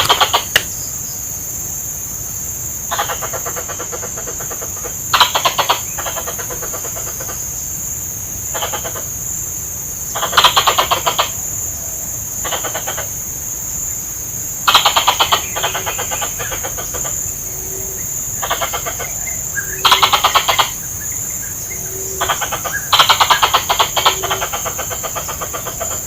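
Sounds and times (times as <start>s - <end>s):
squirrel chattering: 0.0s - 0.7s, 14.7s - 17.1s, 18.4s - 20.8s, 22.1s - 26.0s.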